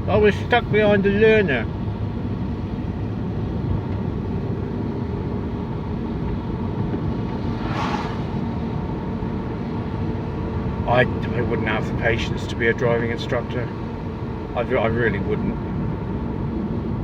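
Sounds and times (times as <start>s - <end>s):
car engine and tyres rumbling: 0.0s - 17.0s
brief hiss: 7.4s - 8.5s.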